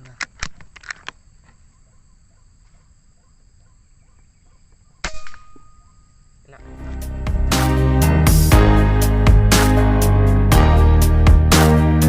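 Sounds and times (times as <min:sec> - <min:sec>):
faint insect drone: 0:00.0 - 0:06.8
music: 0:06.6 - 0:12.0.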